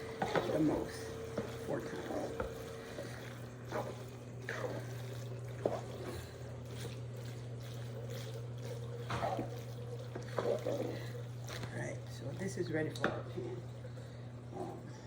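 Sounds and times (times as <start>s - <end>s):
spoon stirring thick sauce: 0.0s - 11.8s
steady low hum: 0.0s - 15.0s.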